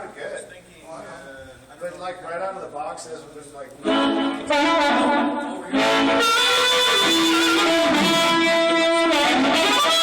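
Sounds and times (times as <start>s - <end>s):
amplified blues harmonica: 3.8s - 10.0s.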